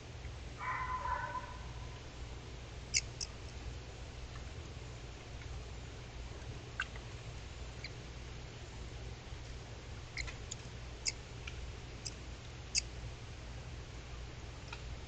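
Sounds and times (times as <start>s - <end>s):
microphone hiss and hum: 0.0s - 15.0s
small animal chirping: 2.9s - 3.5s, 6.7s - 7.1s, 7.8s - 8.0s, 10.1s - 11.2s, 12.0s - 12.9s.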